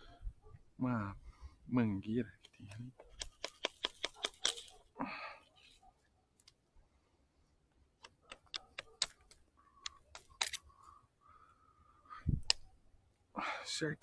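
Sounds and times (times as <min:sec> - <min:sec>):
wooden stick cracking and clicking: 0:02.4 - 0:04.8, 0:08.0 - 0:10.6, 0:12.4 - 0:12.7.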